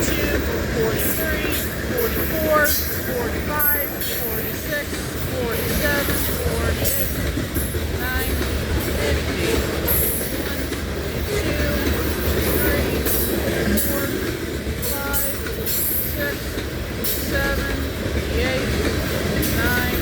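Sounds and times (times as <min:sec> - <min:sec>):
freight train rumble: 0:00.0 - 0:20.0
train wheel clicks: 0:00.0 - 0:20.0
train wheel squeals: 0:09.8 - 0:17.9.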